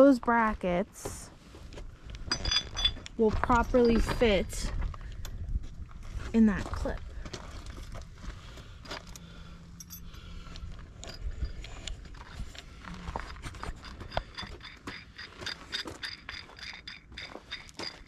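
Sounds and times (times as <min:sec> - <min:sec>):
metal knocks and clinks: 0:02.2 - 0:04.9, 0:08.9 - 0:18.0
metal scraping: 0:07.4 - 0:18.0.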